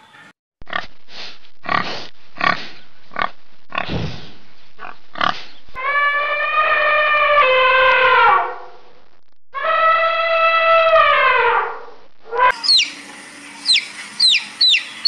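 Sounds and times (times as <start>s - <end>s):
pig grunting and squealing: 1.6s - 4.2s.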